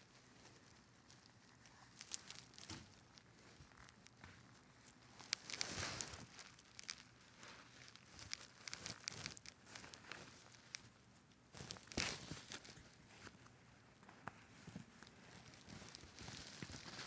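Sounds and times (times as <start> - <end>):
rustling and crinkling: 0.0 - 17.0.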